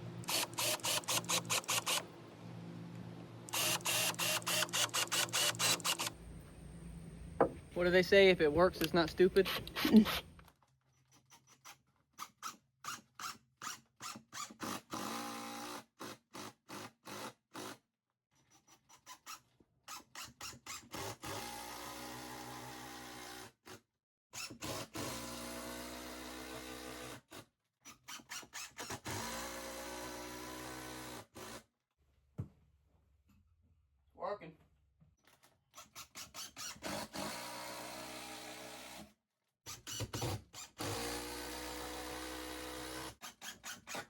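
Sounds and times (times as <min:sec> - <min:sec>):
cordless drill driving screws: 0:00.2 - 0:02.1, 0:03.5 - 0:06.2, 0:08.7 - 0:10.5, 0:28.1 - 0:31.6, 0:35.8 - 0:39.0, 0:39.7 - 0:44.0.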